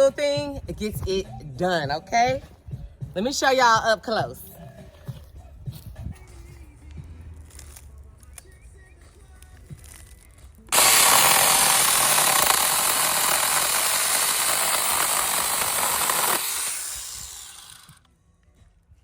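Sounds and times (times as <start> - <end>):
chainsaw cutting wood: 10.7 - 18.0.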